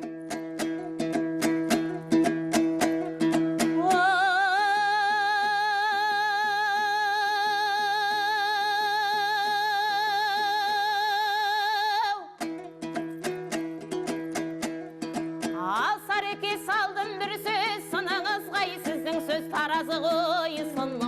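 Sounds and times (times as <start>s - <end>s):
dombra strumming: 0.0s - 6.9s, 12.4s - 21.0s.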